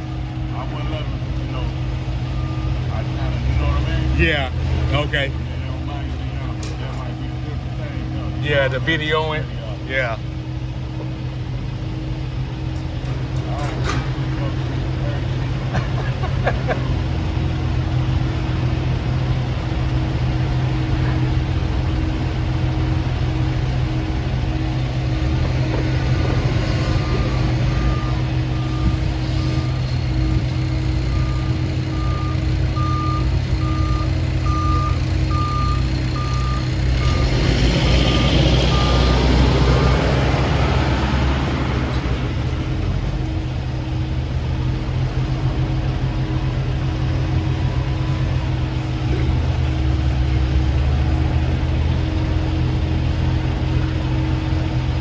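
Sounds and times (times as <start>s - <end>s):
reversing beeper: 0.0s - 10.6s, 19.9s - 40.9s
diesel truck engine idling: 0.0s - 55.0s
louder engine revving: 31.2s - 42.6s.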